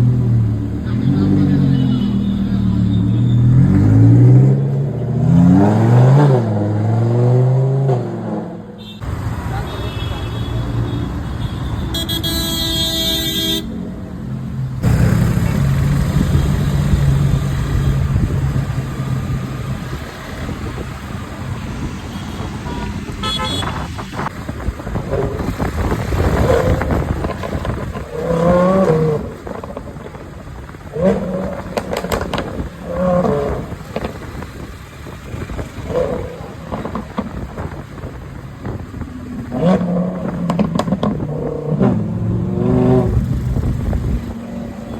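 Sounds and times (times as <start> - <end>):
road traffic engines droning: 0.0 - 44.9
vehicle horn: 8.8 - 13.8, 22.0 - 24.3.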